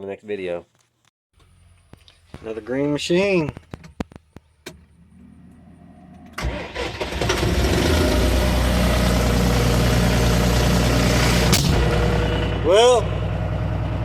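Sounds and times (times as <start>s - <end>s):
tractor engine starting and idling: 1.4s - 14.0s.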